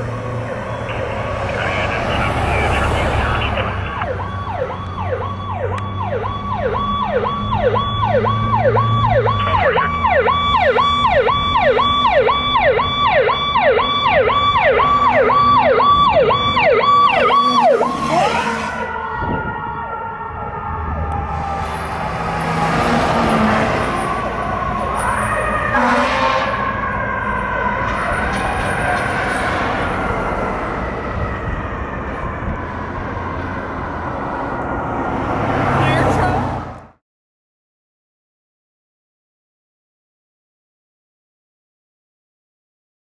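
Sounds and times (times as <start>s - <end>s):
falling siren tone: 0.0s - 36.2s
fire truck siren yelp: 0.0s - 36.8s
road noise: 0.0s - 37.0s
truck engine drone: 0.0s - 37.0s.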